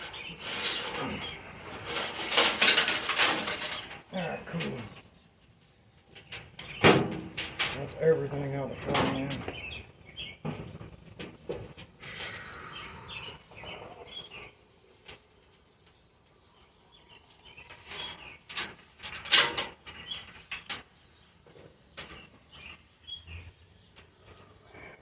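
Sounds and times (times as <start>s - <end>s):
handling clicks and rustles: 0.0s - 9.7s
small birds chirping: 0.0s - 25.0s.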